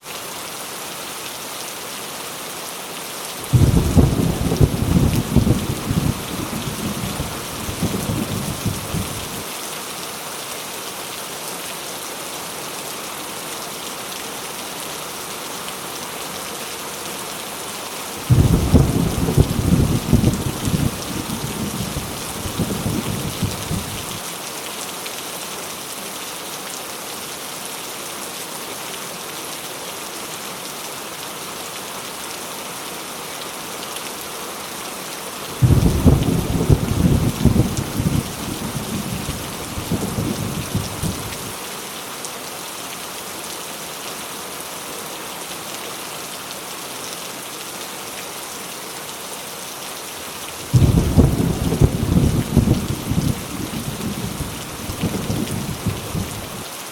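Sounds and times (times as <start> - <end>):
heavy rain: 0.0 - 56.9
rolling thunder: 3.5 - 9.4, 18.3 - 24.1, 35.6 - 41.5, 50.7 - 56.5.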